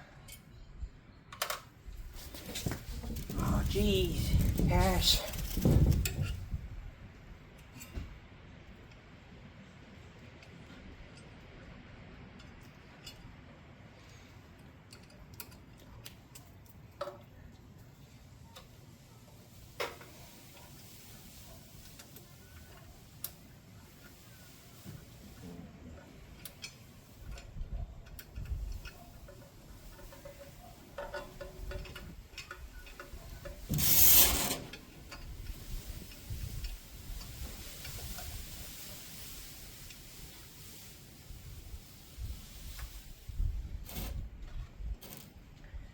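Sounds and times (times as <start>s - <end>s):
clicks of tools and metal parts: 0.2s - 0.6s, 1.3s - 1.7s, 14.8s - 17.2s, 26.4s - 35.4s, 43.8s - 45.4s
small parts clicking: 14.8s - 17.2s.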